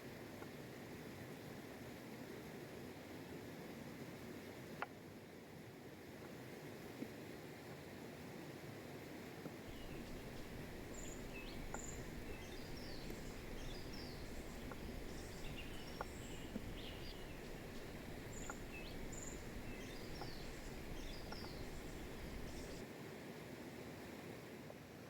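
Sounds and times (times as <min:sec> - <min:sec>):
low rushing background noise: 0:09.7 - 0:22.8
small birds chirping: 0:09.7 - 0:22.8.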